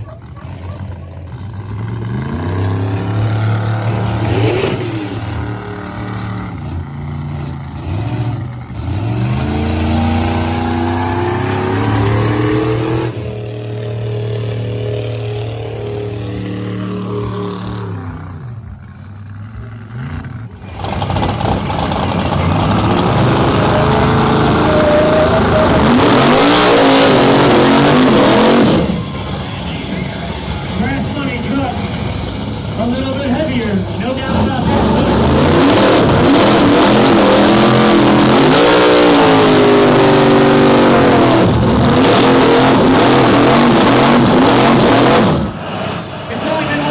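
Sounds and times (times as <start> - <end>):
truck engine revving: 0.0 - 46.9.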